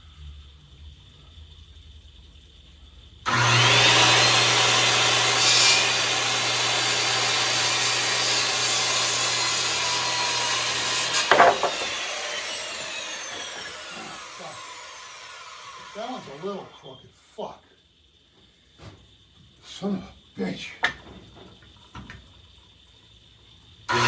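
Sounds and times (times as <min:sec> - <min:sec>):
circular saw cutting wood: 0:03.3 - 0:17.0
sharp knocks: 0:11.1 - 0:12.2.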